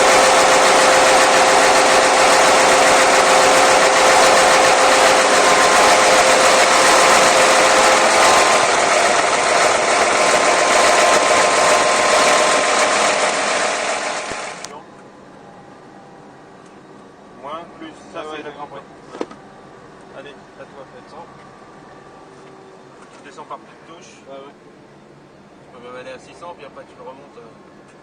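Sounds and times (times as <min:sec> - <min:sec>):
locomotive diesel engine running hard: 0:00.0 - 0:14.7.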